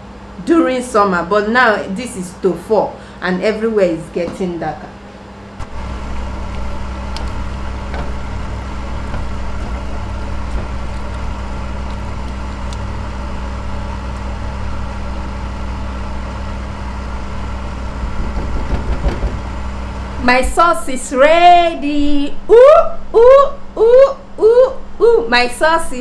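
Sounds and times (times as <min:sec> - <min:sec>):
kitchen appliance motor hum: 0:05.1 - 0:20.2.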